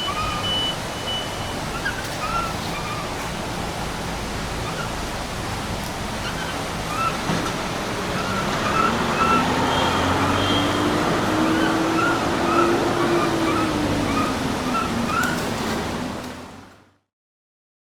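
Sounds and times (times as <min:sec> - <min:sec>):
monkey infant calling: 0:00.0 - 0:03.4, 0:08.2 - 0:15.4.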